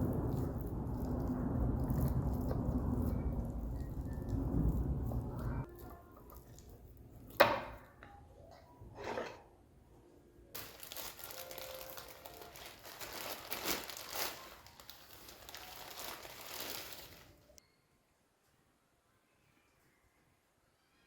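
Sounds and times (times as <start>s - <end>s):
wrapping crinkling: 0.0s - 7.4s, 10.6s - 17.6s.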